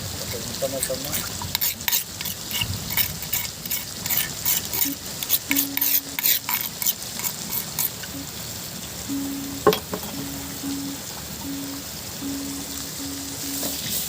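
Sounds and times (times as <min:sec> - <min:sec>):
fish sizzling in hot oil: 0:00.0 - 0:14.0
utensil scraping in a pan: 0:00.2 - 0:08.1.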